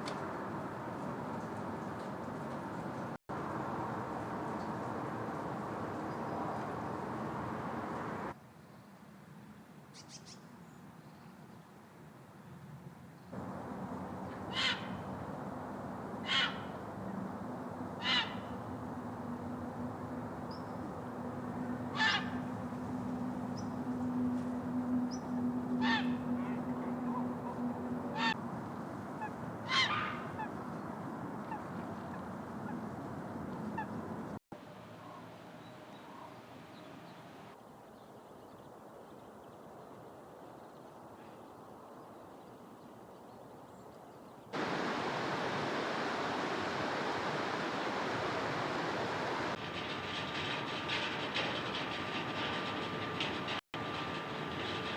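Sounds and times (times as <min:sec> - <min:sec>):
outdoor background noise: 0:00.0 - 0:54.9
harsh bird calls: 0:13.4 - 0:15.3, 0:16.2 - 0:16.9, 0:17.9 - 0:19.5, 0:21.6 - 0:22.7, 0:25.0 - 0:28.4, 0:29.2 - 0:30.6.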